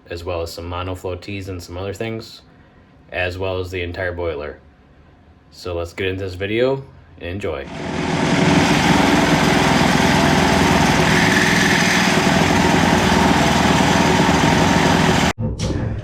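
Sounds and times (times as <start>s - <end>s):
small engine running: 7.7s - 15.3s.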